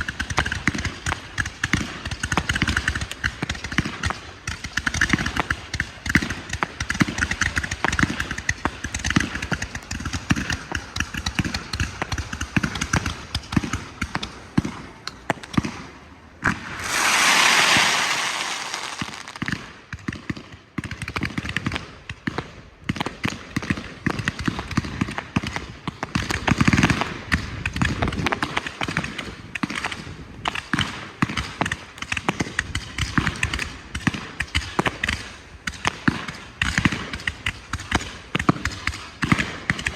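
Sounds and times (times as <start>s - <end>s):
fireworks crackling and popping: 16.4s - 19.8s
loud hissing rush: 16.5s - 19.4s.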